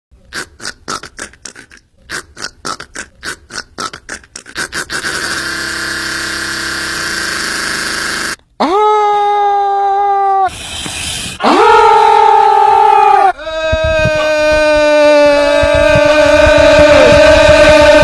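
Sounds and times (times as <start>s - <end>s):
harsh mouth noise: 0.2s - 8.4s, 10.5s - 11.7s, 13.4s - 18.0s
man making mouth clicks: 0.3s - 8.4s.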